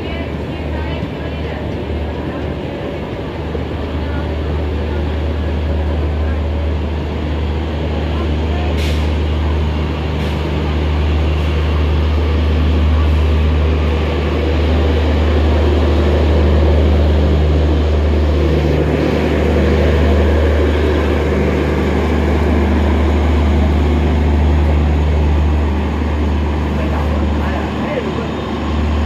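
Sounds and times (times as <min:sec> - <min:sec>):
train engines droning: 0:00.0 - 0:29.0.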